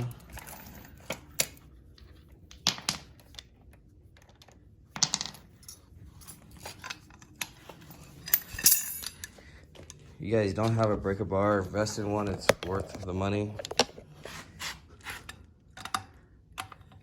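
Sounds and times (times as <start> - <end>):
hand tools clinking on metal: 8.1 - 9.3.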